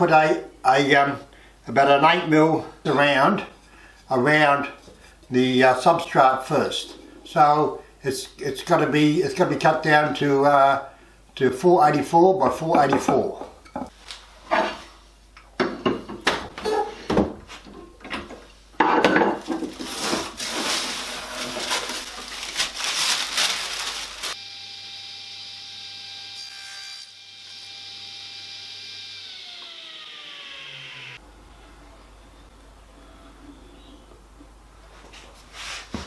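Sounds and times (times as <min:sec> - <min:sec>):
power saw cutting wood: 0:24.3 - 0:31.2
saw motor whine winding down: 0:24.4 - 0:31.7.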